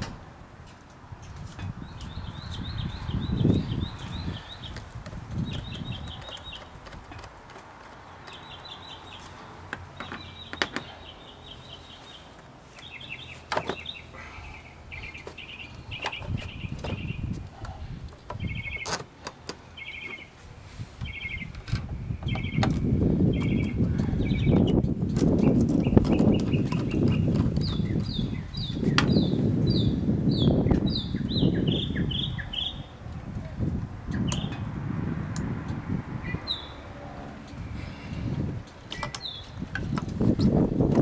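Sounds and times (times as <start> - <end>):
wind rumble on microphone: 0.0 - 9.2, 14.9 - 19.0, 19.8 - 41.0.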